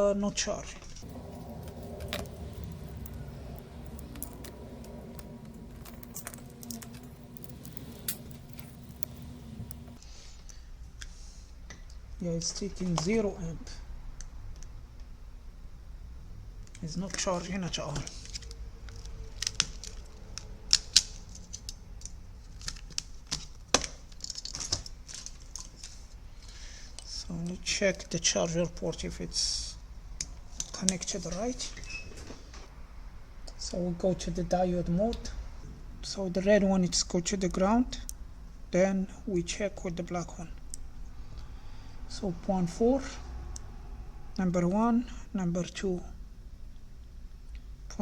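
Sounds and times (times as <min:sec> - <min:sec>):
light clicks and metallic rattles: 0:01.0 - 0:10.0
steady low hum: 0:01.0 - 0:10.9.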